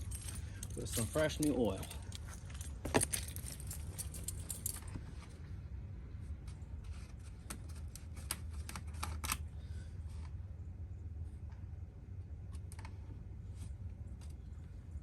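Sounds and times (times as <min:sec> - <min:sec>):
small metal parts clicking: 0:00.0 - 0:05.0
low steady hum: 0:00.0 - 0:15.0.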